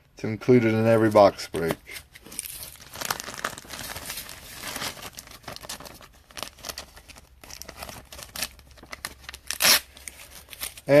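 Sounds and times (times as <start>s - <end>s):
plastic wrapper crinkling: 1.0s - 11.0s.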